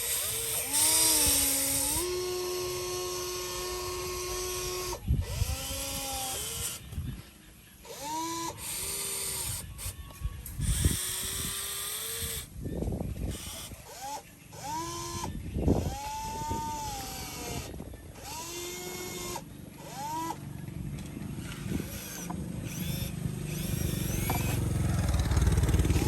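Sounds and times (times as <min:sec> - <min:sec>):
small electric motors whining: 0:00.0 - 0:26.0.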